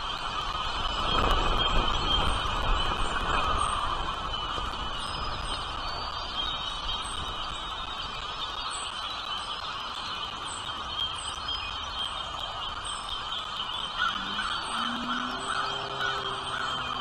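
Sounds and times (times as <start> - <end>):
bird chirping: 13.0 - 17.0.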